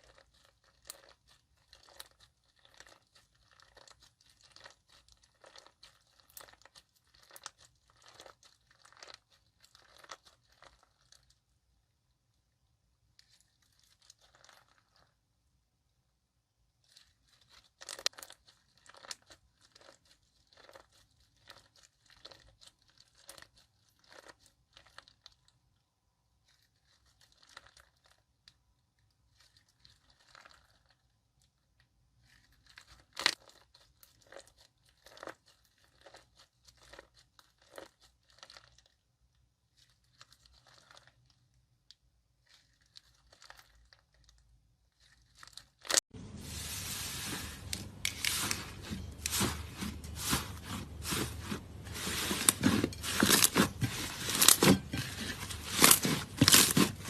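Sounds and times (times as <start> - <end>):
slime squeezed and stretched: 0.0 - 11.3, 45.1 - 57.0.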